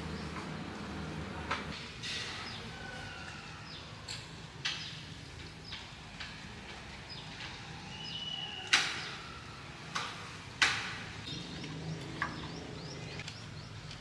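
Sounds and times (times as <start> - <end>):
faint bird chirping: 7.9 - 9.5.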